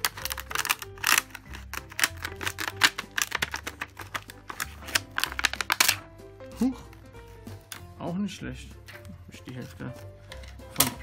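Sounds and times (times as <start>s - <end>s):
scissors cutting plastic: 0.0s - 6.0s
soft background music: 0.0s - 11.0s.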